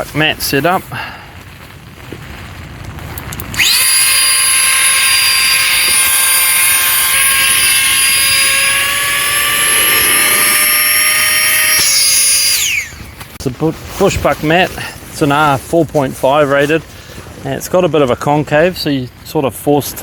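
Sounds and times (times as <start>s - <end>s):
electric air pump whining: 3.5s - 13.2s.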